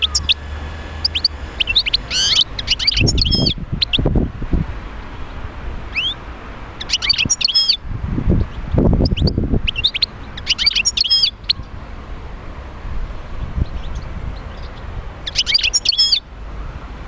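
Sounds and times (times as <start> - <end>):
goldfinch twittering song: 0.0 - 4.1, 5.9 - 6.2, 6.8 - 7.8, 8.4 - 11.8, 13.6 - 16.8.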